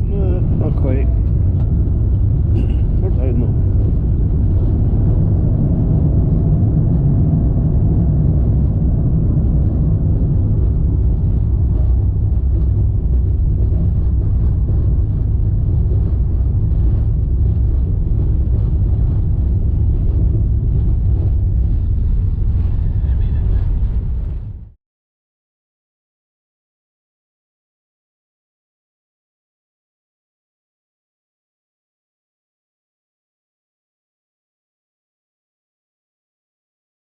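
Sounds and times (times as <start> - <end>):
airliner cabin rumble: 0.0 - 24.8.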